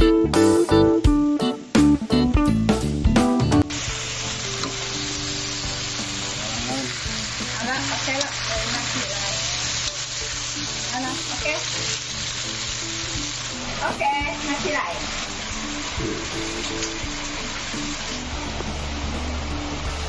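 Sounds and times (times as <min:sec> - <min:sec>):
food sizzling in a wok: 0:03.7 - 0:20.0
short music: 0:15.4 - 0:20.0.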